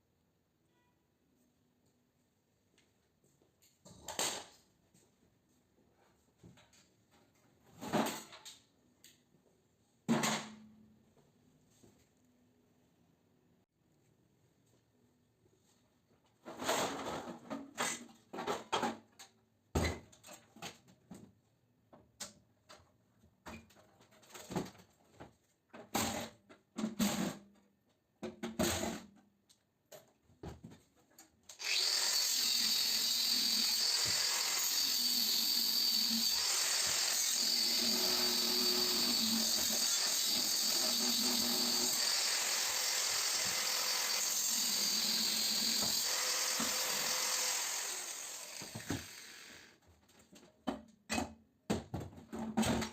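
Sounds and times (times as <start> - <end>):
power tool whining: 31.6 - 49.7.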